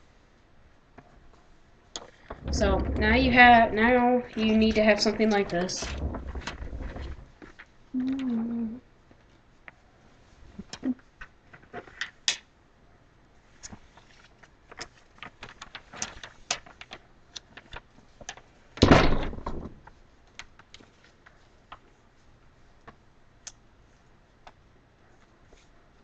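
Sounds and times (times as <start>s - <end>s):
paper being folded and creased: 4.4s - 8.3s, 13.4s - 18.6s.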